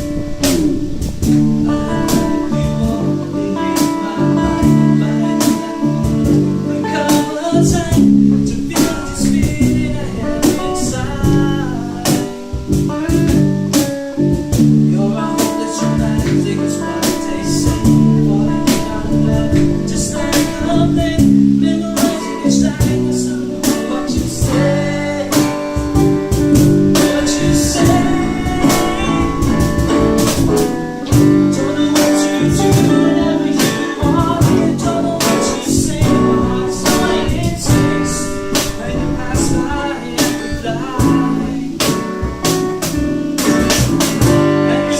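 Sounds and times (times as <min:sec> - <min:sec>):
guitar: 0:00.0 - 0:44.9
person singing: 0:00.0 - 0:44.9
percussive beat: 0:22.8 - 0:38.8.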